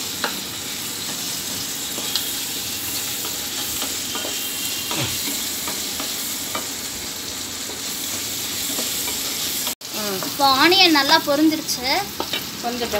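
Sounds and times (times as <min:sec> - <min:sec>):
onions sizzling in hot oil: 0:00.0 - 0:12.9
spatula scraping and tapping pan: 0:03.0 - 0:06.8, 0:07.7 - 0:10.4, 0:12.2 - 0:12.5.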